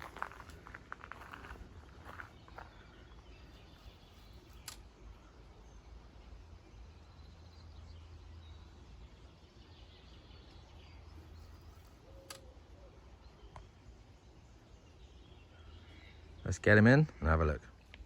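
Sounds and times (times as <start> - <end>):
faint bird chirps: 0.0 - 18.0
brief clicks: 4.5 - 4.9.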